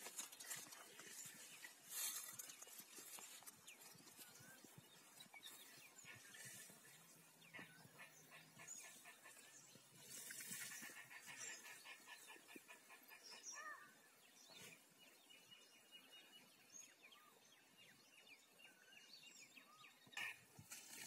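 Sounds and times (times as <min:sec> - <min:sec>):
bird chirps and calls: 0:01.5 - 0:17.4.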